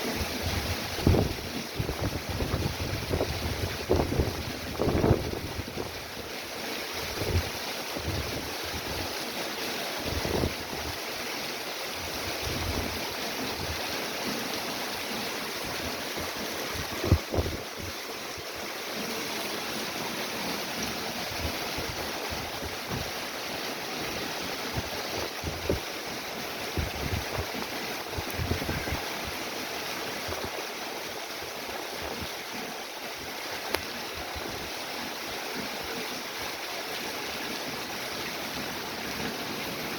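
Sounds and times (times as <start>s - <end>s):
heavy rain falling: 0.0s - 39.9s
wind buffeting microphone: 0.2s - 6.0s, 10.0s - 11.0s, 15.5s - 18.7s, 24.1s - 26.0s, 26.6s - 29.4s.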